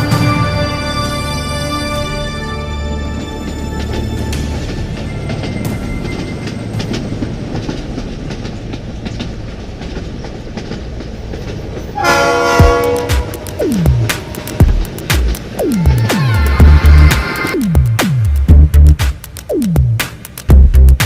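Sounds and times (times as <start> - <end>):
train rumbling on rails: 0.0 - 21.0
locomotive horn: 12.0 - 13.5.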